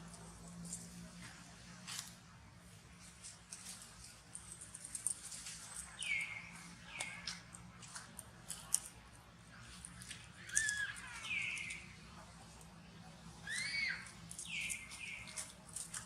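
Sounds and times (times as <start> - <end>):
faint clicks and rustling: 2.9 - 13.1, 14.0 - 16.0
monkeys squeaky calls: 10.3 - 12.0, 13.4 - 15.4.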